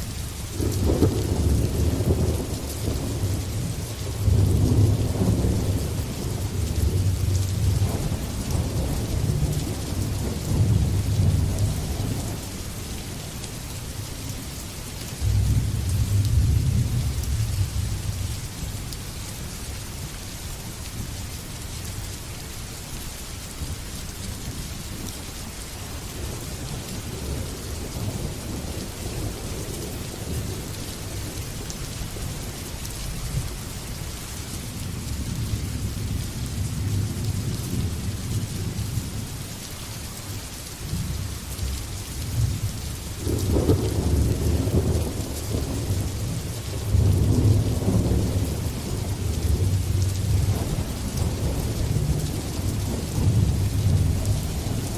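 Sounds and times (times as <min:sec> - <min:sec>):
steady rain: 0:00.0 - 0:54.9
rolling thunder: 0:00.6 - 0:12.4, 0:42.3 - 0:54.9.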